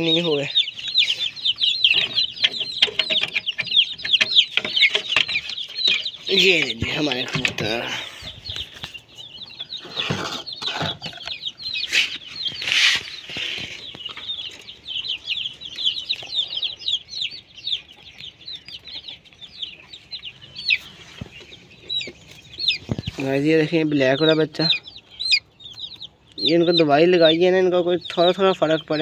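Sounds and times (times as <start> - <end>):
small birds cheeping: 0.0 - 29.0
rustling: 11.8 - 14.6.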